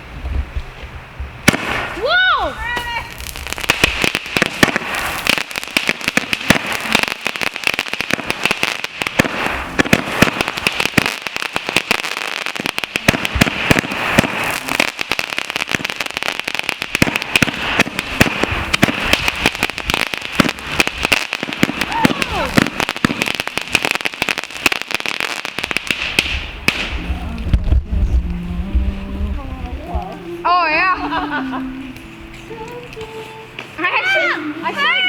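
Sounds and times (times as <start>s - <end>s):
fireworks crackling and popping: 0.0s - 35.0s
steady hiss: 0.0s - 35.0s.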